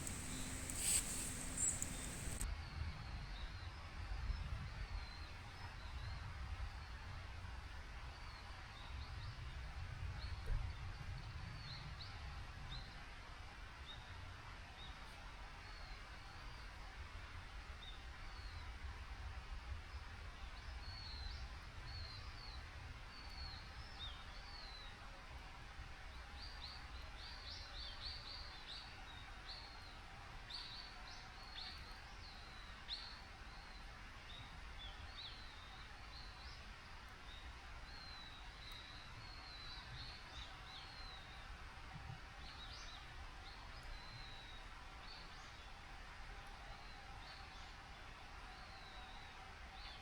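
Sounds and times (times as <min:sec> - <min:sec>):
faint outdoor background rush: 0:00.0 - 0:02.4
small birds chirping: 0:00.0 - 0:02.4.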